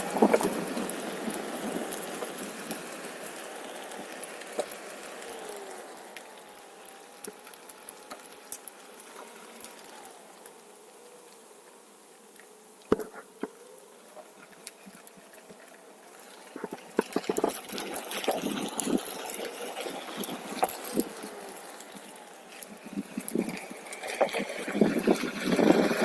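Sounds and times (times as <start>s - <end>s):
tyre rumbling over rough trail: 0.0s - 10.6s, 14.2s - 26.0s
electric motor whine: 0.0s - 26.0s.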